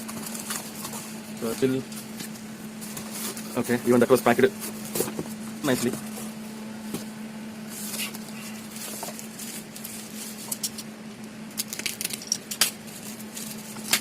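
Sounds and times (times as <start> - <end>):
cardboard and plastic rustling: 0.0 - 10.8, 11.6 - 14.0
steady low hum: 0.0 - 14.0.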